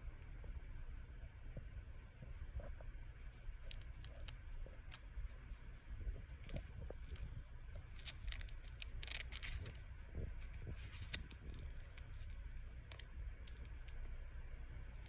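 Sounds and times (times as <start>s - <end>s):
steady low rumble: 0.0s - 15.0s
soft rustling: 1.3s - 15.0s
small clicks: 3.6s - 5.1s, 6.5s - 14.2s.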